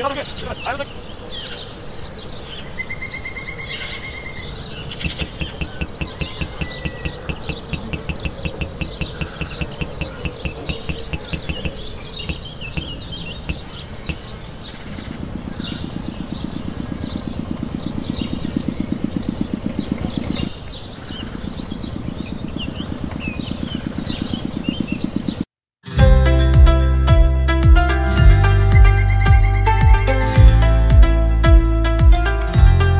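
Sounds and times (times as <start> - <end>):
birds chirping: 0.0 - 25.5
tractor engine chugging: 5.1 - 14.2.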